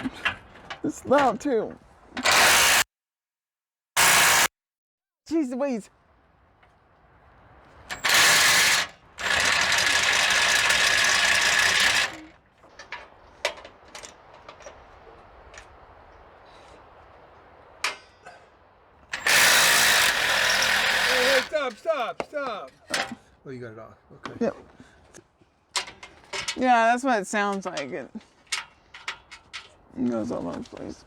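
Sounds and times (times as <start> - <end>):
power tool on bolt: 2.2 - 2.9, 4.0 - 4.5, 7.9 - 12.4, 19.1 - 21.6
sharp metal clicks: 19.1 - 21.8.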